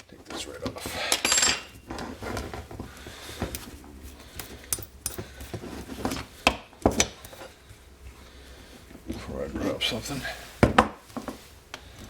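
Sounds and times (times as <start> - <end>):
metal parts clicking and knocking: 4.4 - 5.3.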